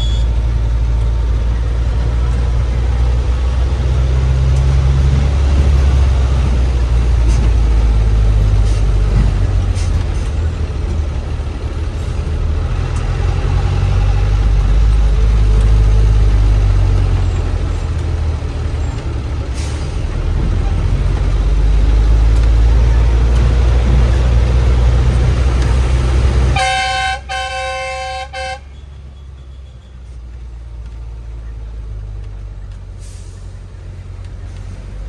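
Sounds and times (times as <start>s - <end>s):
vehicle horn honking: 0.0s - 0.4s, 26.6s - 28.9s
bus engine rumbling: 0.0s - 35.0s.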